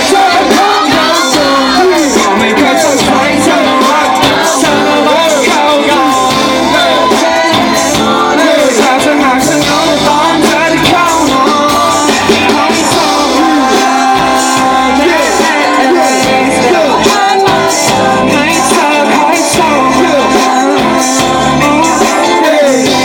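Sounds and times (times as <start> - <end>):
band playing pop song: 0.0 - 23.0
person singing: 0.0 - 23.0.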